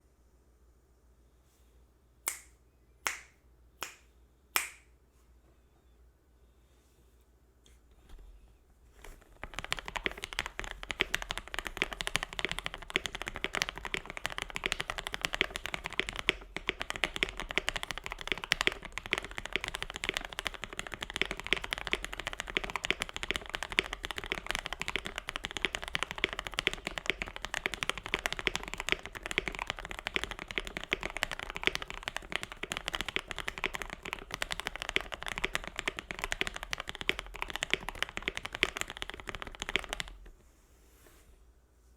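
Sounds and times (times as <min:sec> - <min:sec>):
fast typing on mechanical keyboard: 0:09.1 - 0:40.3.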